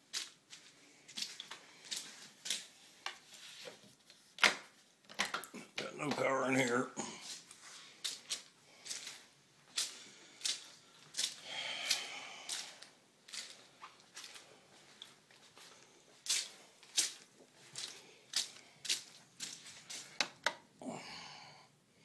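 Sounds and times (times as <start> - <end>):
footsteps on wet carpet: 0.0 - 2.8, 6.0 - 20.2.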